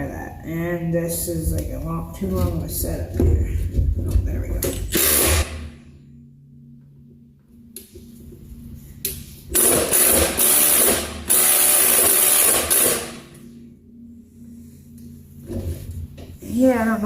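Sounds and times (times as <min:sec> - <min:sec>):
impact wrench hammering: 0:04.7 - 0:05.8, 0:09.5 - 0:13.4.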